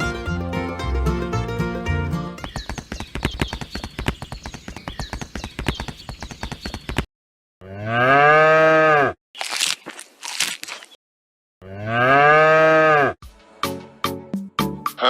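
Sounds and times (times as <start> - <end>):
fast patter of clicks: 2.4 - 7.1
cow mooing: 7.6 - 9.2, 11.6 - 13.2.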